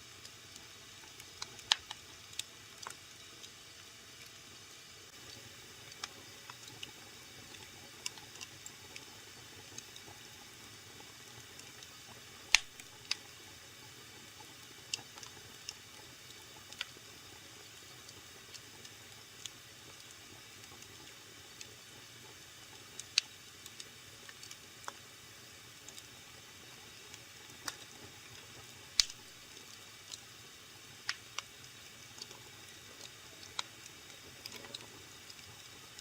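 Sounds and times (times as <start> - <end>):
wood fire crackling: 0.1 - 36.0
fire popping: 1.0 - 3.0, 12.5 - 13.2, 29.0 - 30.2
hiss of burning: 9.7 - 36.0.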